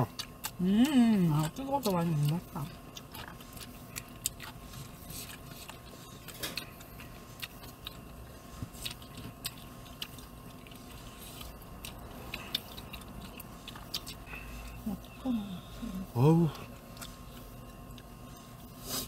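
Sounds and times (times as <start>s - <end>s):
low steady hum: 0.0s - 19.0s
person chewing food: 0.0s - 19.0s.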